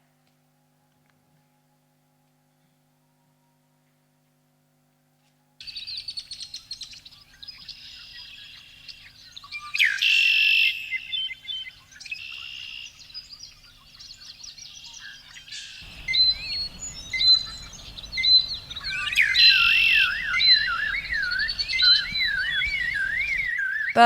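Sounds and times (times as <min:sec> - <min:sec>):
birds chirping and trilling: 0:05.6 - 0:24.0
low rushing background noise: 0:15.7 - 0:23.5
warbling bird call: 0:15.8 - 0:24.0.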